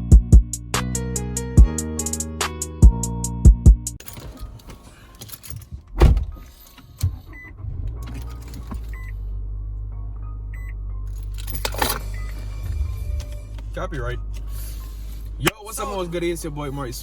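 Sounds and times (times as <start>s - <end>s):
car engine running: 4.0s - 17.0s
loud thump: 6.0s - 6.4s
high warning chime: 11.3s - 14.4s.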